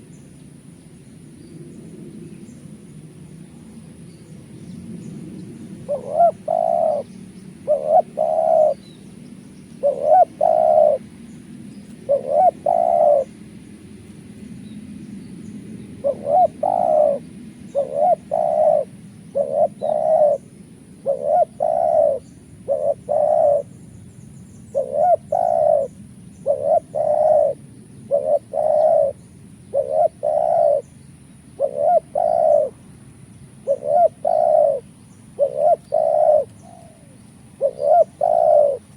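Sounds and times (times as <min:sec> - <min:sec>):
dove cooing: 0:05.6 - 0:08.9, 0:09.7 - 0:11.2, 0:11.9 - 0:13.4, 0:16.0 - 0:23.7, 0:24.6 - 0:30.9, 0:31.6 - 0:32.8, 0:33.6 - 0:38.9.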